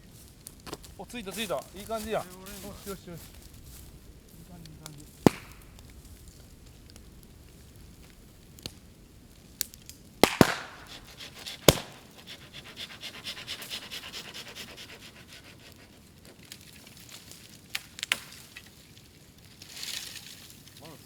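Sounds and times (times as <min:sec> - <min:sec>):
bamboo popping and cracking in fire: 0:00.0 - 0:21.0
rapid pulsing hiss: 0:10.4 - 0:15.6.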